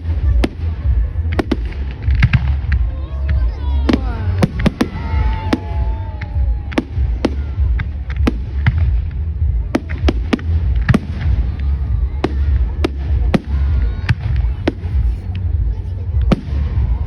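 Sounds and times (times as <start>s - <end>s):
fireworks bangs and cracks: 0.0s - 17.0s
steady low rumble: 0.0s - 17.0s.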